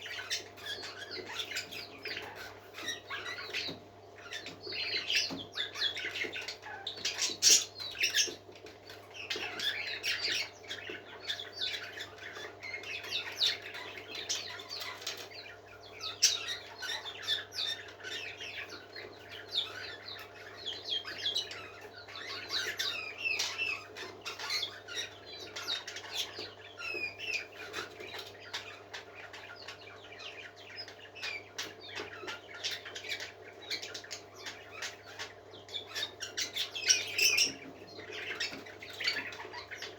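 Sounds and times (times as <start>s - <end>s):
parakeets chattering and chirping: 0.0s - 39.9s.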